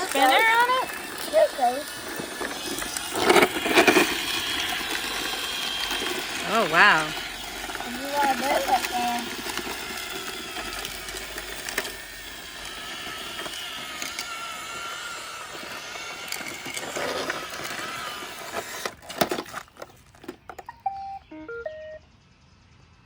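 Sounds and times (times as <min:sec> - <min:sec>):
brushes scraping grit: 0:00.0 - 0:19.8
robot vacuum motors whining: 0:00.0 - 0:21.6
electronic beeps: 0:20.5 - 0:22.2.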